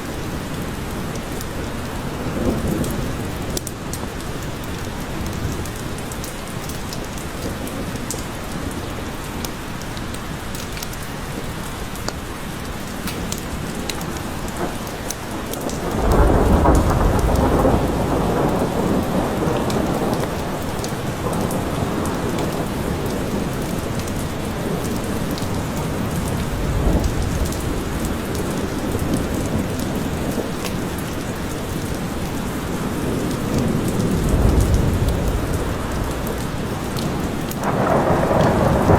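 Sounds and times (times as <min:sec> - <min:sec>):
rain falling in forest: 0:00.0 - 0:38.9
thunder rumbling: 0:14.1 - 0:30.4, 0:32.6 - 0:38.9.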